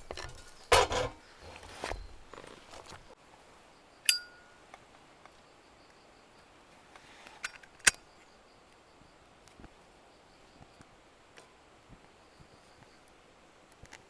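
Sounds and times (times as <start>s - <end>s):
hard objects clinking: 0.0s - 3.1s.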